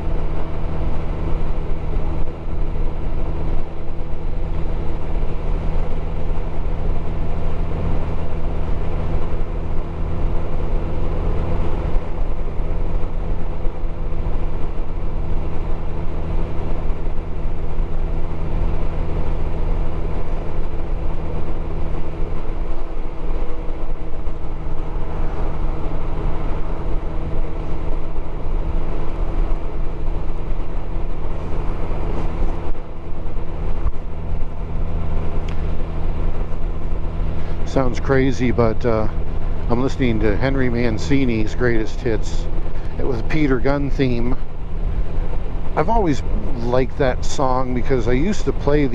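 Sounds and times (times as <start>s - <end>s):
road noise: 0.0s - 48.9s
motorcycle engine running: 16.5s - 48.9s.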